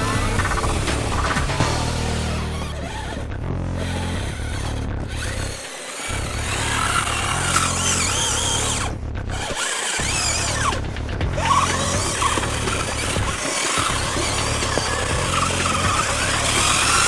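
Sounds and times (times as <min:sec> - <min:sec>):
background music: 0:00.0 - 0:17.0
electric motor whining: 0:00.0 - 0:17.0.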